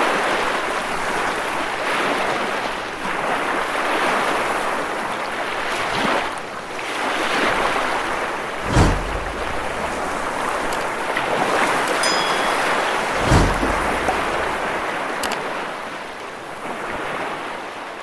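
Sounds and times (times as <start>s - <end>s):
deep thump: 8.6s - 10.8s, 12.2s - 14.8s
waves breaking on rocks: 8.6s - 15.3s.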